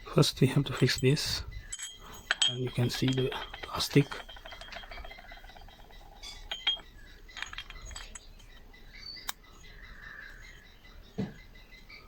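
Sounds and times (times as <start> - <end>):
small metal parts clinking: 0.4 - 9.4.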